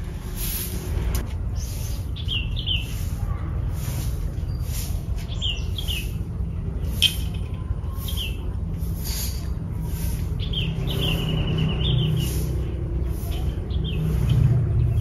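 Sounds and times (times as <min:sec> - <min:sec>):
small bird chirping: 0:01.5 - 0:03.3, 0:04.4 - 0:08.9.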